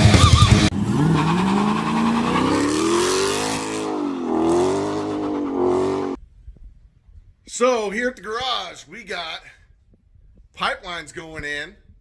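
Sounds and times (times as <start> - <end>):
car engine accelerating: 0.0 - 6.2.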